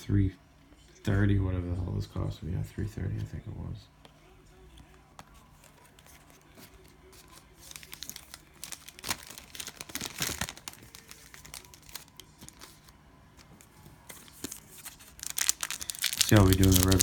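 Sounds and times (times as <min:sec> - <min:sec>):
cellophane wrapper crinkling and tearing: 0:06.7 - 0:12.9, 0:14.1 - 0:17.0.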